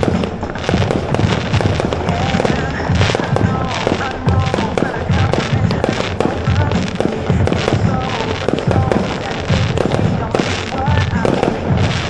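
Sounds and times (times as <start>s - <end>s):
fireworks booming and crackling: 0.0s - 12.0s.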